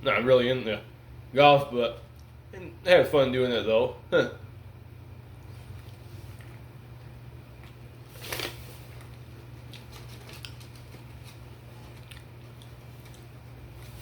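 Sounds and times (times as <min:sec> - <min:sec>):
steady low hum: 0:00.0 - 0:14.0
chewing and mouth clicks: 0:09.0 - 0:14.0.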